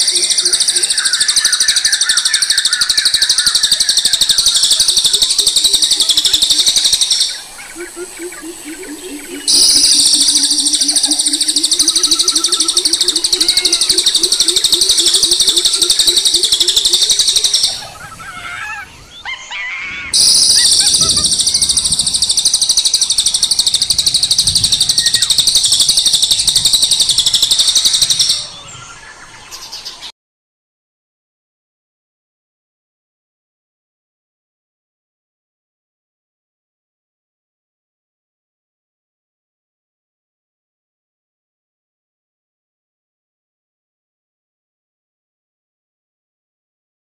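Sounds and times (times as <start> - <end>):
faint chirps: 0.0 - 19.4, 20.1 - 30.1
high-pitched buzzing animal call: 0.0 - 28.5
low rapid trill: 8.7 - 17.9, 20.2 - 28.5.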